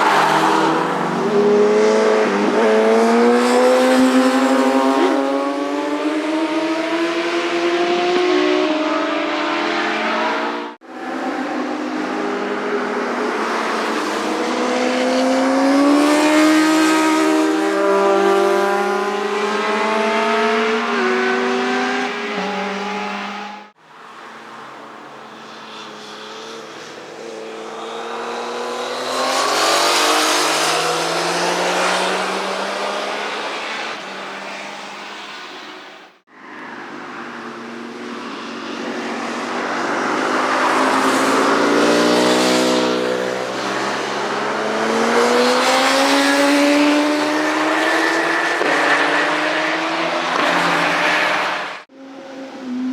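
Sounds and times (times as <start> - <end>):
motorcycle engines accelerating past: 27.4 - 33.4, 39.2 - 51.7.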